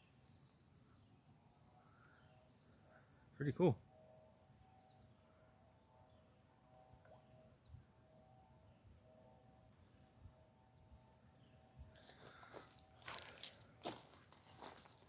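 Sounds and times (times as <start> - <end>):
insects droning: 0.0 - 15.0
footsteps on a trail: 11.9 - 15.0.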